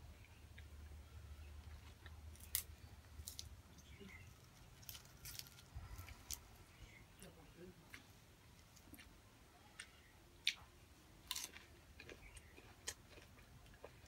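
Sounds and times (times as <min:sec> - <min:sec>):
crisp crunches: 0:01.8 - 0:06.5
person chewing food: 0:07.9 - 0:14.0.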